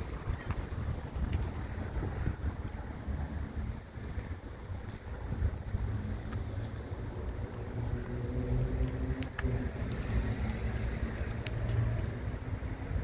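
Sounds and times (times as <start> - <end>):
vehicle engine humming: 6.1 - 13.0.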